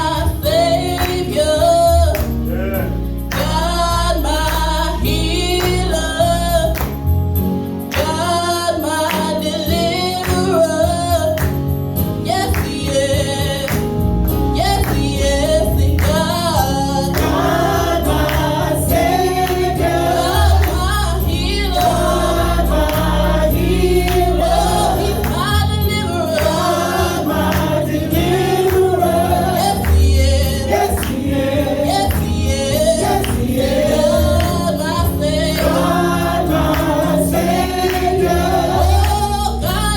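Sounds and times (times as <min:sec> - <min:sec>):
gospel choir singing: 0:00.0 - 0:39.9.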